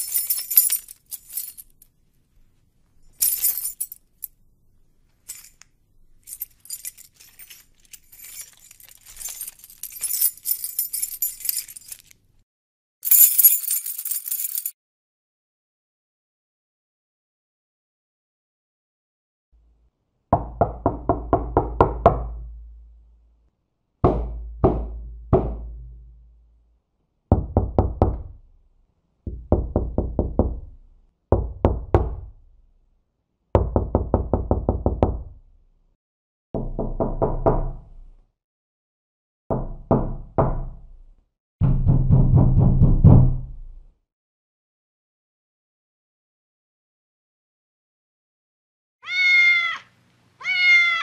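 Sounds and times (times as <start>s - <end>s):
knuckles knocking on door: 20.4s - 22.4s, 24.0s - 25.8s, 27.3s - 28.4s, 29.3s - 30.7s, 33.6s - 35.3s, 36.6s - 37.8s, 41.6s - 43.4s.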